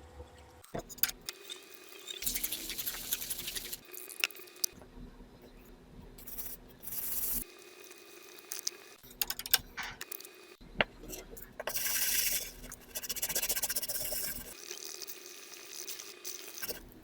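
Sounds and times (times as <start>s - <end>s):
scrubbing a metal coin: 1.4s - 3.8s, 11.7s - 14.6s.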